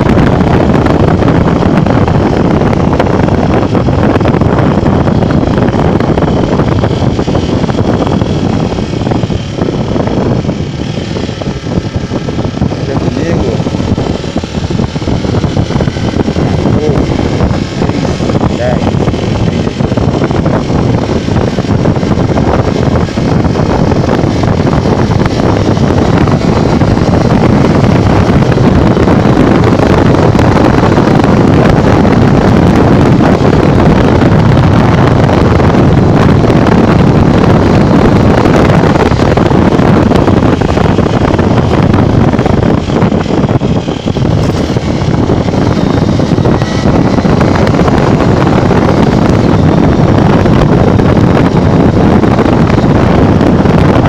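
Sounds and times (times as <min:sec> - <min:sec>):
motorcycle road rush: 0:00.0 - 0:53.9
wind buffeting microphone: 0:00.0 - 0:54.0.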